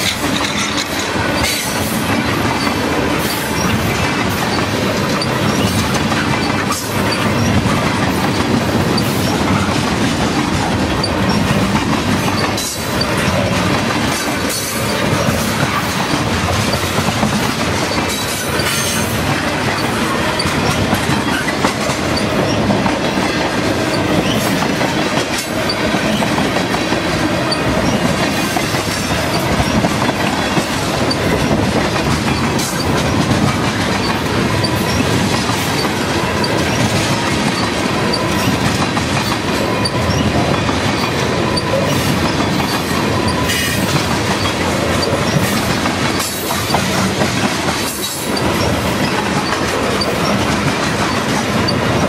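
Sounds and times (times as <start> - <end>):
clickety-clack over rail joints: 0.0 - 52.0
steel wheels rumbling on rail: 0.0 - 52.0.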